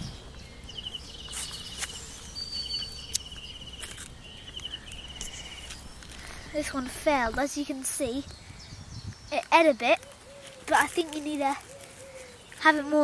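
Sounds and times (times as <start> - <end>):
insect chirping in pulsed trills: 0.0 - 9.2
rustling in vegetation: 0.0 - 13.0
footsteps: 1.2 - 8.0.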